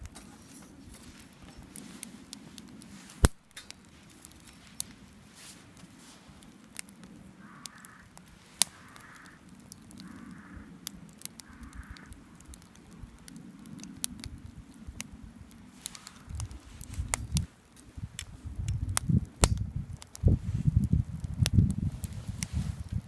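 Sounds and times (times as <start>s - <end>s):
campfire crackling and popping: 0.0s - 23.0s
short calls in background: 7.3s - 9.4s.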